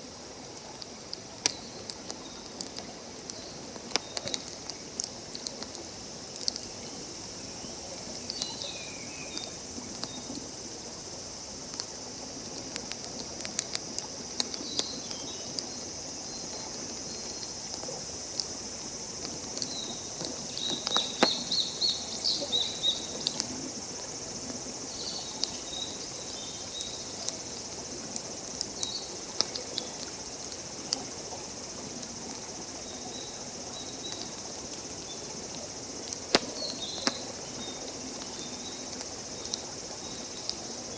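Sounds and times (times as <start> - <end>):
high-pitched hiss: 0.0 - 40.9
campfire crackling and popping: 0.4 - 6.7, 11.7 - 15.8, 16.6 - 24.6, 26.4 - 31.1, 36.0 - 39.7.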